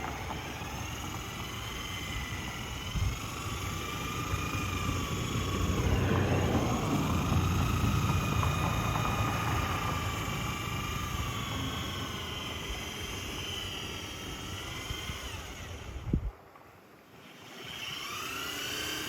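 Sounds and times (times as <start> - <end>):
buffing wheel rumbling on metal: 0.0 - 15.0
electric polisher motor whine: 0.0 - 16.4, 17.2 - 19.0.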